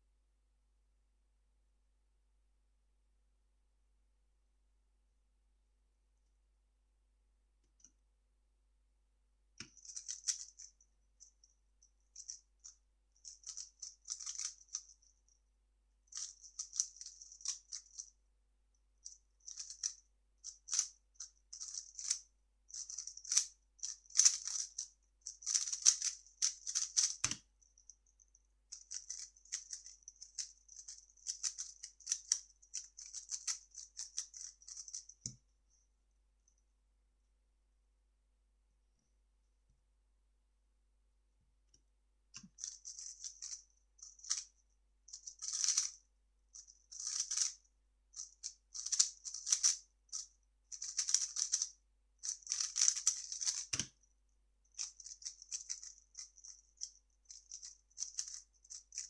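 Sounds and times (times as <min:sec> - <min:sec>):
plastic puzzle cube clicking: 0:22.8 - 0:27.4, 0:45.4 - 0:45.9, 0:47.0 - 0:47.5, 0:48.8 - 0:49.8, 0:50.8 - 0:53.9, 0:58.1 - 0:58.4.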